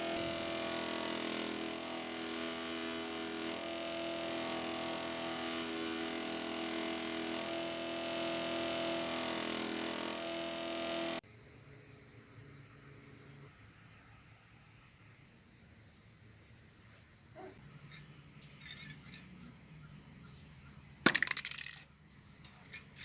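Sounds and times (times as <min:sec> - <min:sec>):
electric power tool motor hum: 0:00.0 - 0:11.2.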